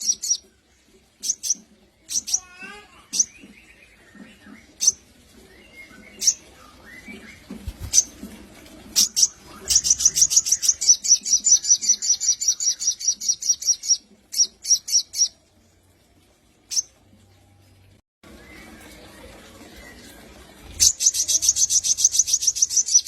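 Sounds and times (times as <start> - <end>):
bird chirping and trilling: 0.0 - 0.5, 1.2 - 8.2, 8.9 - 15.4, 16.7 - 17.0, 19.7 - 23.0.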